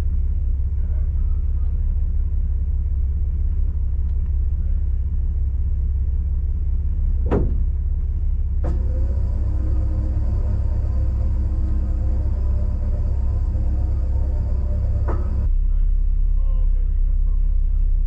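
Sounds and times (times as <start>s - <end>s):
vehicle engine rumbling: 0.0s - 18.0s
click: 4.0s - 4.4s
steady higher tones: 8.9s - 15.5s.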